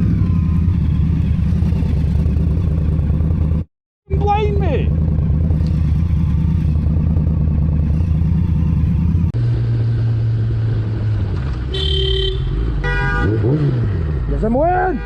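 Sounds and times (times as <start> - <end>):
motorcycle engine running: 0.0 - 11.0
lower-pitched engine: 0.0 - 14.6
vehicle horn honk: 11.7 - 13.7.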